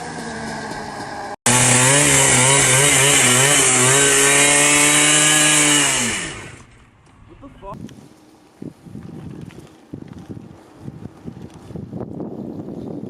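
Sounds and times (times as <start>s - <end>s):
motorcycle engine revving high: 0.0s - 6.7s.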